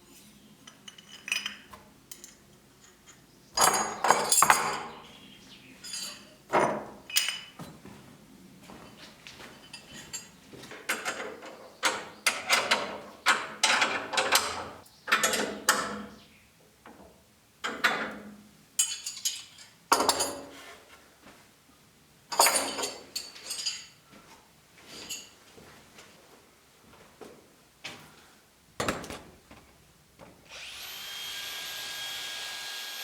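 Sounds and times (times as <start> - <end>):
metallic clinks and knocks: 0.7 - 5.0, 5.8 - 7.6, 9.6 - 12.8, 22.3 - 24.0.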